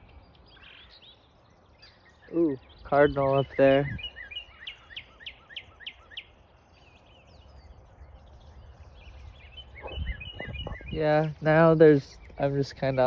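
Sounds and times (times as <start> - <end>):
faint bird calls: 8.6 - 13.0.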